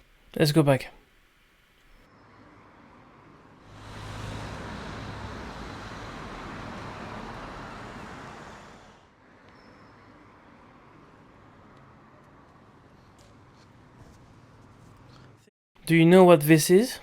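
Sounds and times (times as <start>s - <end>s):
road vehicle passing: 2.3s - 15.5s.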